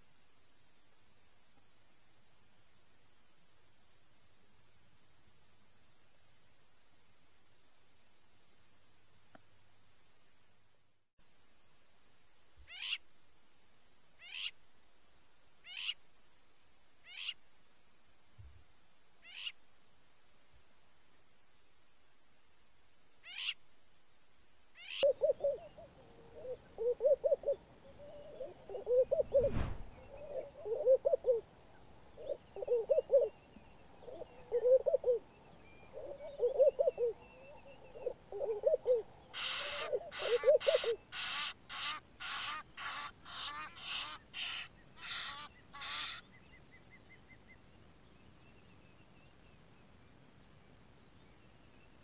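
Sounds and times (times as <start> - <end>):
low hooting bird calls: 24.8 - 46.4
low thump: 29.3 - 30.0
harsh high bird calls: 39.4 - 46.2.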